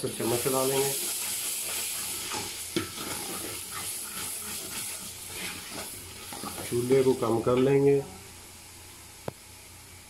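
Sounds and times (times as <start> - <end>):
food sizzling in hot oil: 0.0 - 9.8
ladle scraping pot: 1.6 - 6.7.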